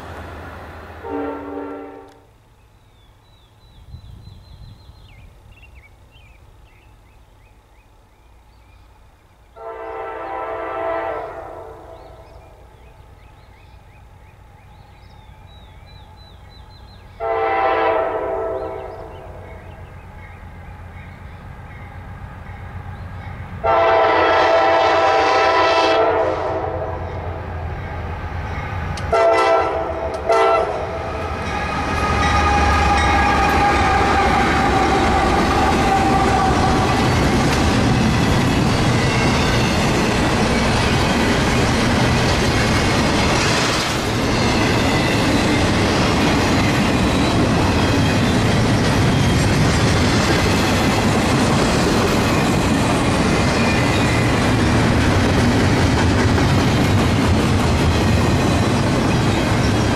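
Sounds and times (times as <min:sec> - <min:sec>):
freight train wheels rumbling: 0:00.0 - 0:07.2, 0:08.7 - 0:59.9
train horn: 0:01.0 - 0:02.3, 0:09.6 - 0:12.4, 0:17.2 - 0:19.4, 0:23.6 - 0:27.4, 0:29.1 - 0:37.3.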